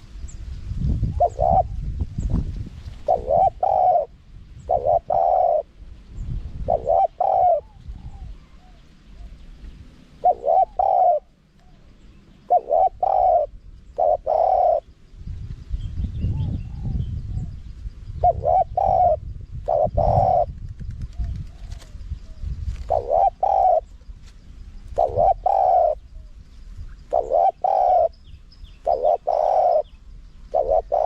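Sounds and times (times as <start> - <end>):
dove cooing: 1.0 - 1.9, 3.0 - 5.8, 6.5 - 9.4, 10.1 - 15.0, 18.2 - 24.1, 24.8 - 31.0.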